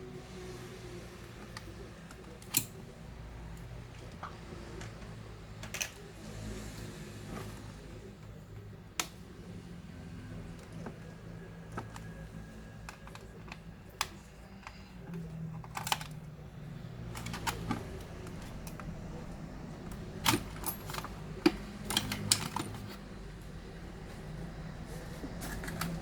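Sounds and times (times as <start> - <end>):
steady low hum: 0.0 - 26.0
clicks and taps of small parts: 12.8 - 16.2.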